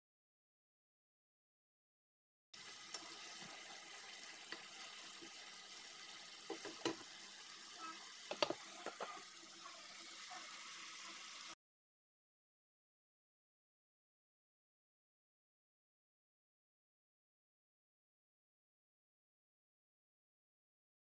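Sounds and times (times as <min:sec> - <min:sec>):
chicken sizzling in a pot: 0:02.6 - 0:11.6
wooden spoon knocking pot: 0:08.3 - 0:09.2.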